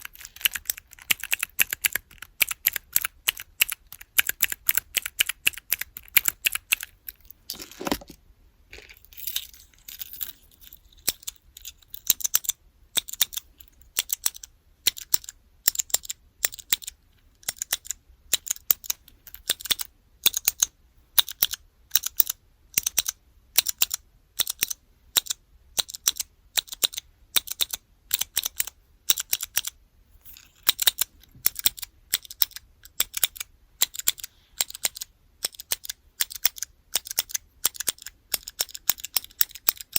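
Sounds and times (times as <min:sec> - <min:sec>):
keyboard keys clicking: 0:00.0 - 0:08.1.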